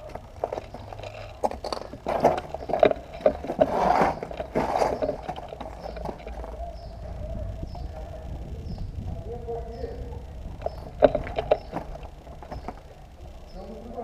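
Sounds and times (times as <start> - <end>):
scraping and rustling: 0.0 - 6.9, 10.5 - 13.1.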